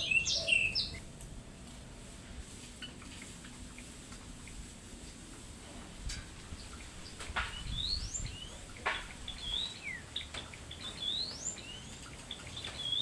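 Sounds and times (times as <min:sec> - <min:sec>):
songbirds singing: 0:00.0 - 0:02.1, 0:06.3 - 0:13.0.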